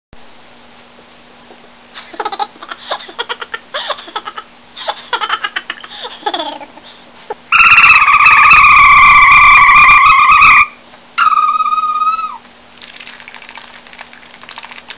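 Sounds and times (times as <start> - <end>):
high-pitched voice giggling: 2.0 - 8.3, 11.2 - 12.4.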